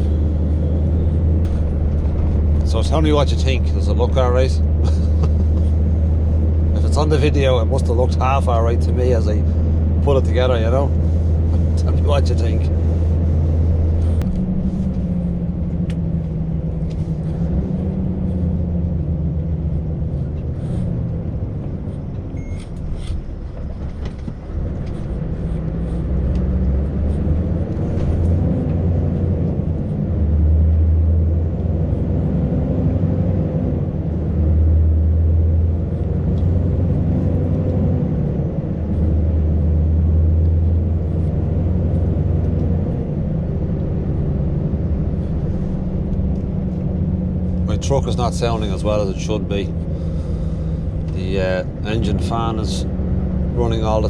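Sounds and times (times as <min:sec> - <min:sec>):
truck engine running under load: 0:00.0 - 0:54.0
radiator fan running: 0:38.2 - 0:54.0.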